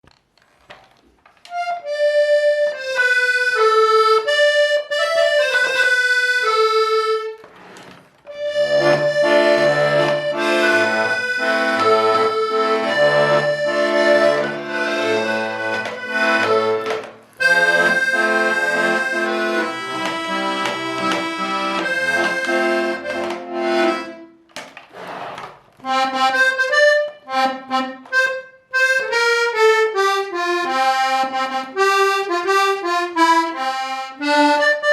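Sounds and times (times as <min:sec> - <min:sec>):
button accordion playing: 0:01.5 - 0:24.5, 0:25.4 - 0:34.9.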